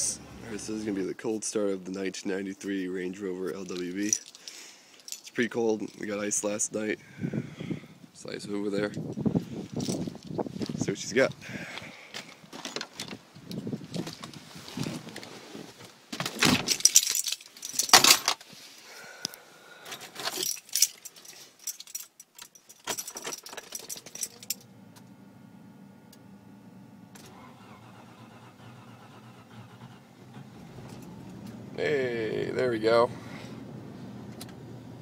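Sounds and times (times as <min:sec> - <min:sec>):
car keys jangling: 0:03.5 - 0:06.1, 0:09.0 - 0:10.4, 0:16.5 - 0:18.4, 0:19.9 - 0:24.7, 0:27.2 - 0:31.7
faint steady hum: 0:23.9 - 0:31.8.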